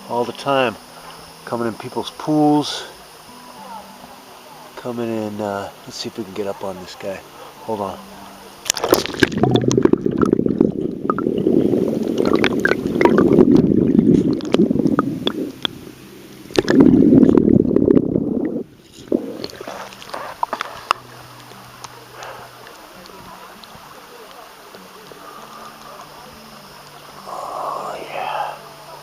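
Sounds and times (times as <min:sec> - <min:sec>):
rumbling rustling on microphone: 0:09.0 - 0:15.8, 0:16.5 - 0:21.2.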